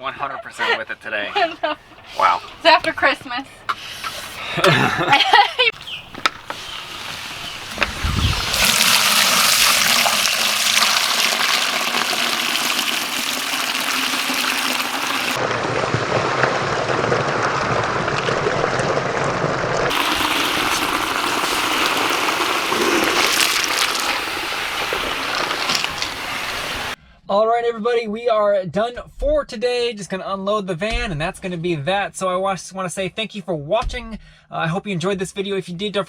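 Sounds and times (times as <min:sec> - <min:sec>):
running water: 0:05.7 - 0:15.4, 0:19.9 - 0:27.0.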